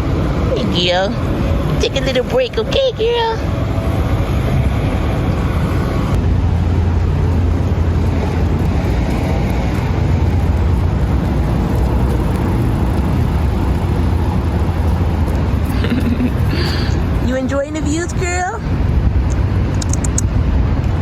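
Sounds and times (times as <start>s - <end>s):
low motor rumble: 0.0s - 19.8s.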